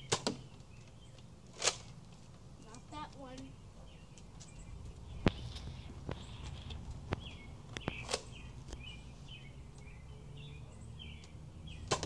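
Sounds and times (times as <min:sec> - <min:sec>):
small birds chirping: 0:00.0 - 0:12.0
sharp snap: 0:11.2 - 0:12.0.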